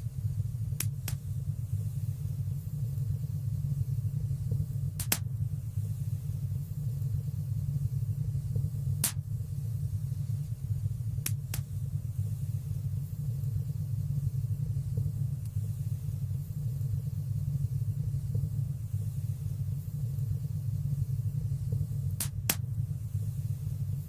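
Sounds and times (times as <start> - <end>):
low rumble of flames: 0.0 - 24.0
fire crackling pops: 0.6 - 2.0, 4.4 - 5.6, 8.6 - 9.6, 11.0 - 12.1, 21.4 - 23.2.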